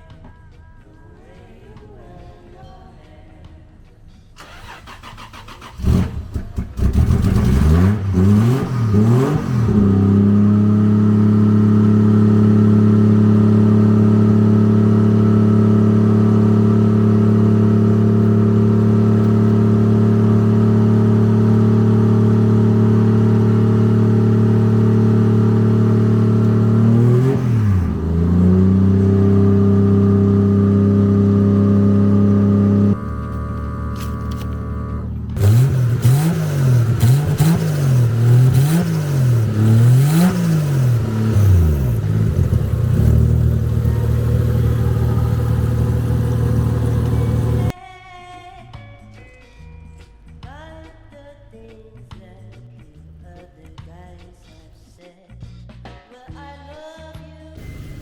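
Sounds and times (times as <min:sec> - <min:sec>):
car engine revving: 0:04.4 - 0:47.7, 0:57.6 - 0:58.0.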